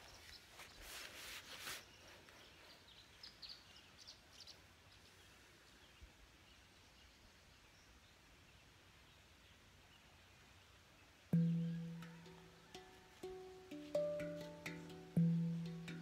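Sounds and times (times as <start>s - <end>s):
short rustle: 0.0s - 2.9s
faint outdoor ambience: 0.0s - 16.0s.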